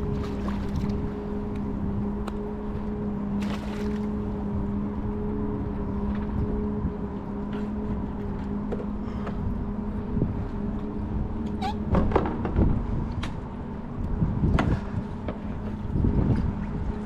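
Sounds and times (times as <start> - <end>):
water noise: 0.0 - 17.0
wind: 0.0 - 17.0
short squeak: 11.5 - 11.9
knocks and clatter on kayak: 11.9 - 13.3.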